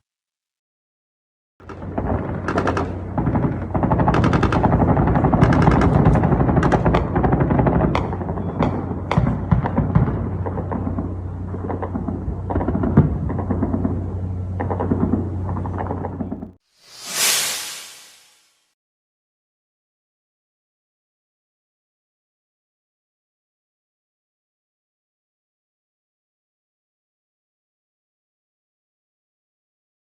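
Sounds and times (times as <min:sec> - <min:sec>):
anti-aircraft gunfire bursts: 0:01.6 - 0:14.0.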